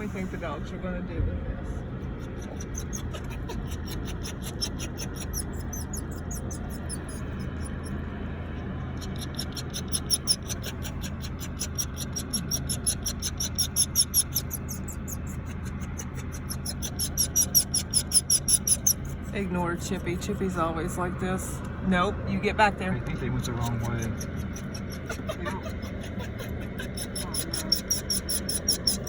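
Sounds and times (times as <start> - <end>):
low machinery hum: 0.0 - 29.0
dog panting: 2.0 - 8.0, 22.8 - 29.0.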